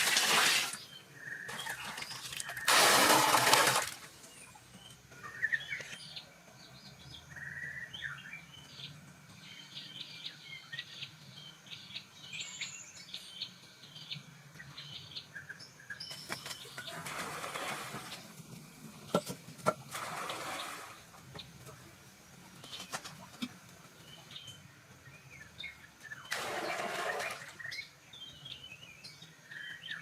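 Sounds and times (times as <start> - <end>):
birds chirping: 20.4 - 30.0.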